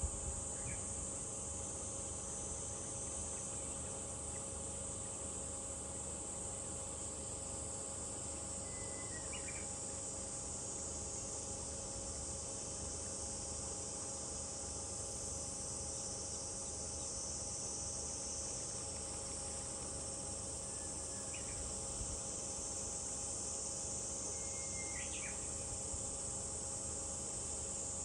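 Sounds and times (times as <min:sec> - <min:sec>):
cicadas chorus: 0:00.0 - 0:28.0
faint bird chirps: 0:08.6 - 0:09.7, 0:24.3 - 0:25.5.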